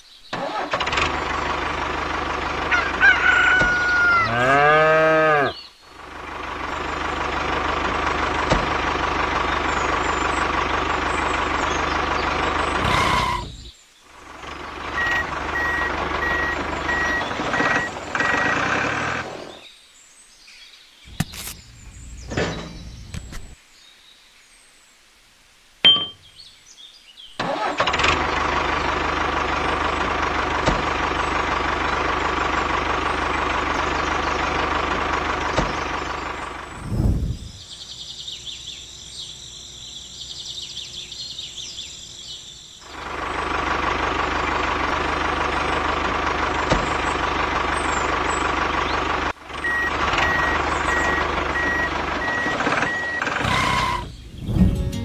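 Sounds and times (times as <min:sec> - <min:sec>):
small engine running: 0:00.4 - 0:19.6, 0:27.5 - 0:37.0, 0:42.8 - 0:54.6.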